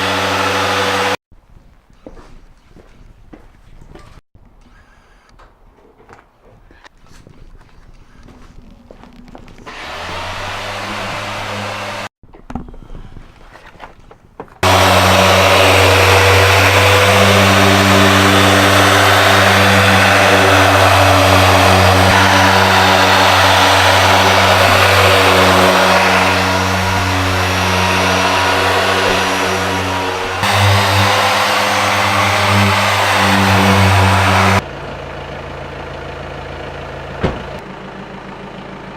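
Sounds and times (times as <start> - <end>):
car engine drone: 0.0 - 1.2, 9.5 - 12.1, 14.6 - 38.9
loud rushing noise: 9.7 - 12.1, 14.6 - 34.6.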